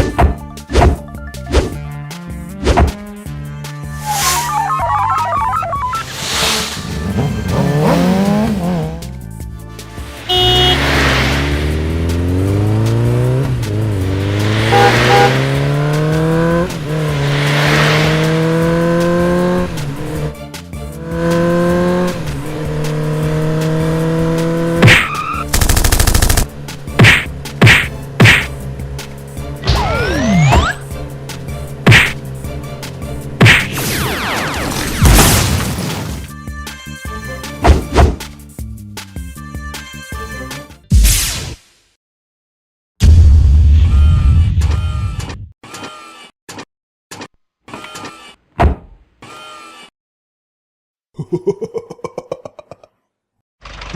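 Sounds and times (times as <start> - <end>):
cartoon music: 3.9 - 6.2, 29.6 - 30.9
falling whistle glides: 4.0 - 6.1
sharp hit sound effects: 14.0 - 15.8
loud buzzing burst: 14.1 - 15.7
cartoon engine revving: 29.6 - 30.9.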